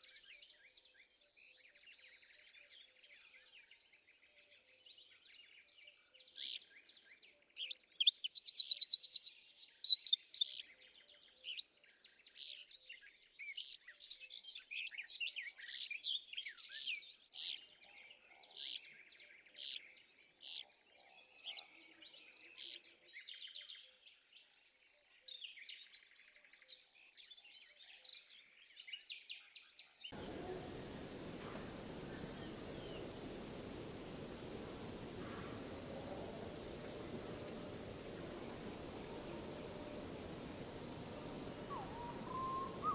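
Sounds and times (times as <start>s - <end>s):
bird chirping and whistling: 8.1s - 10.5s, 36.4s - 42.9s
fast bird trill: 8.1s - 10.5s, 30.2s - 42.9s.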